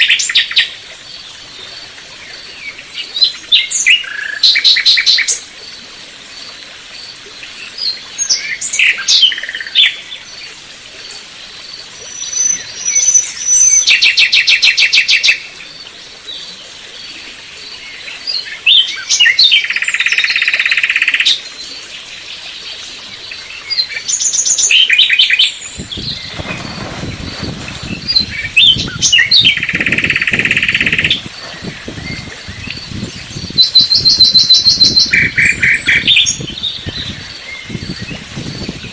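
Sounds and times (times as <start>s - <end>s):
small birds singing and chirping: 23.2s - 38.9s.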